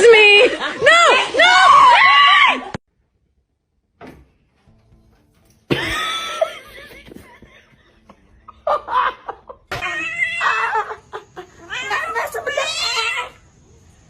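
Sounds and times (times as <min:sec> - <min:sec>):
people laughing: 0:05.7 - 0:12.0
cat crying: 0:09.7 - 0:13.4.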